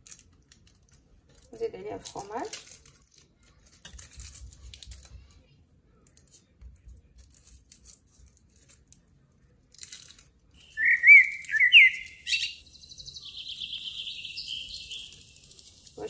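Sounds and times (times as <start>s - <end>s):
foil wrapper crinkling: 0.0s - 5.2s, 14.7s - 16.0s
bird chirping: 10.6s - 16.0s.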